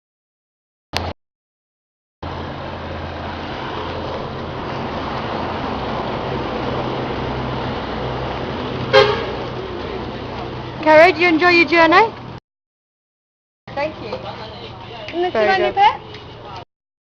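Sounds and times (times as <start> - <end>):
road noise: 1.0 - 1.2, 2.2 - 12.4, 13.7 - 16.7
wind: 1.0 - 1.2, 2.2 - 12.4, 13.7 - 16.7.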